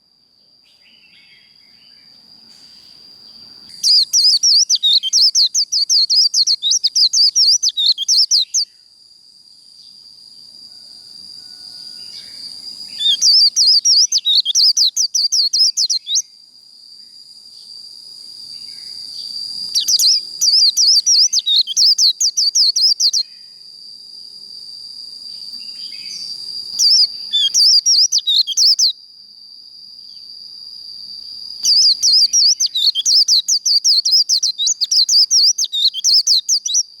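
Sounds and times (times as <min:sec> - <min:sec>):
bird warbling song: 0:00.7 - 0:08.7, 0:12.1 - 0:16.2, 0:18.7 - 0:23.3, 0:25.6 - 0:28.9, 0:31.6 - 0:36.9.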